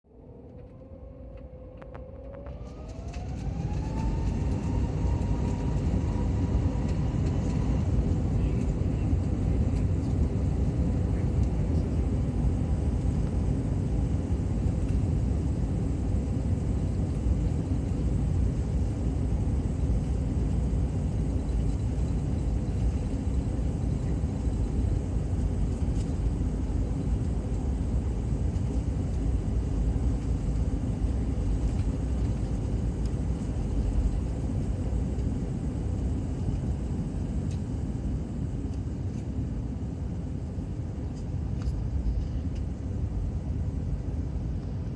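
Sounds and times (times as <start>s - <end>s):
cabin air noise: 0.1s - 44.9s
jet engines whining and rumbling: 0.1s - 44.9s.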